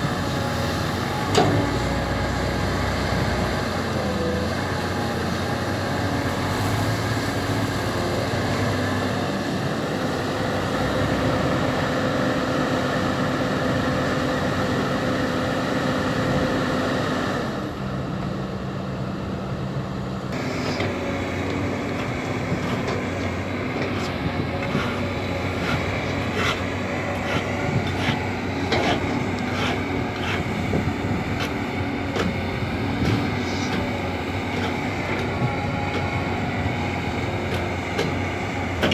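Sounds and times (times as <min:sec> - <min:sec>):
excavator diesel engine running: 0:00.0 - 0:38.9
metal clanks and knocks: 0:20.4 - 0:32.4.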